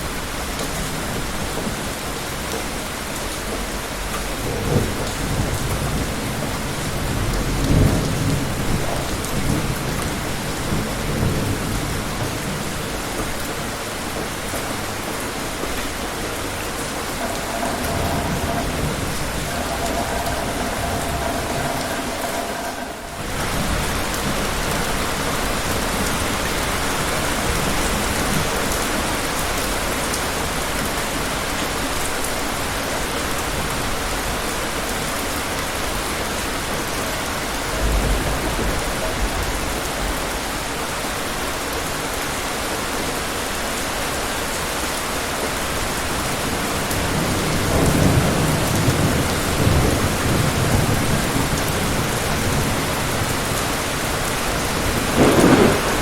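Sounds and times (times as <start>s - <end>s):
steady rain: 0.0s - 56.0s
thunder rumbling: 3.9s - 28.8s, 37.2s - 41.3s, 47.0s - 56.0s.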